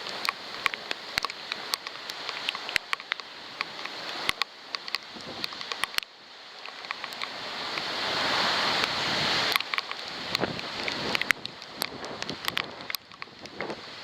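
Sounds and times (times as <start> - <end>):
raindrops ticking on camera housing: 0.0 - 14.0
storm wind rushing: 7.9 - 13.9.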